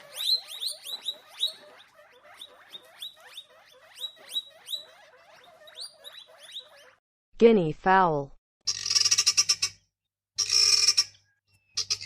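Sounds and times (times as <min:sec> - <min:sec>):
guinea pig squeaking: 0:00.0 - 0:07.0, 0:08.7 - 0:09.8, 0:10.4 - 0:11.1, 0:11.8 - 0:12.0.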